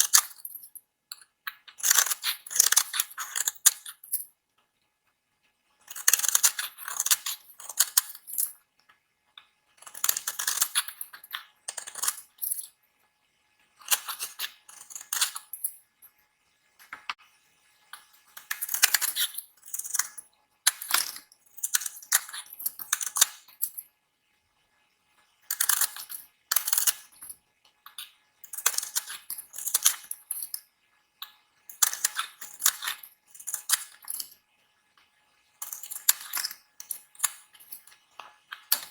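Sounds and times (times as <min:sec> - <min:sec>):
knife scraping soap: 0:00.0 - 0:04.2, 0:05.8 - 0:08.6, 0:09.8 - 0:12.8, 0:13.8 - 0:15.8, 0:18.0 - 0:23.8, 0:25.4 - 0:30.7, 0:31.7 - 0:34.4, 0:35.6 - 0:38.9.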